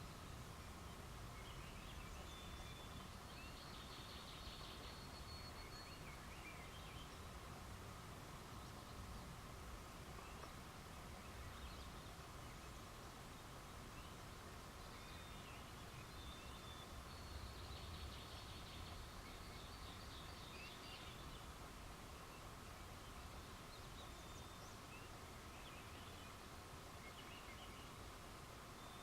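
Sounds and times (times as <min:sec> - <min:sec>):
steady low hiss: 0:00.0 - 0:29.0.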